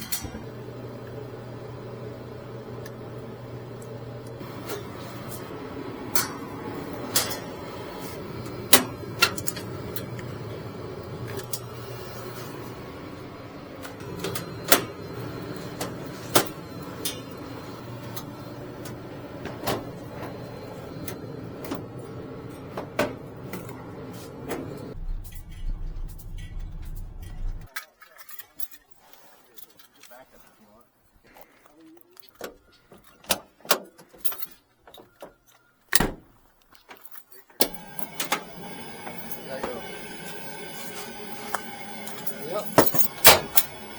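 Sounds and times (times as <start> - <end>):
low machine hum: 0.1 - 27.7, 37.7 - 43.9.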